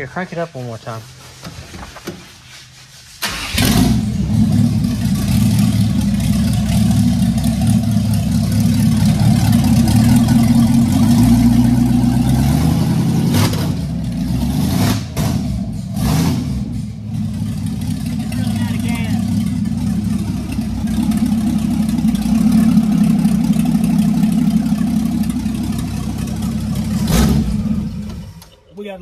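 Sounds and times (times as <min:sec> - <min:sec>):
engine cranking and starting: 0:03.2 - 0:06.5
engine running at fast idle: 0:03.4 - 0:13.2, 0:15.5 - 0:28.4.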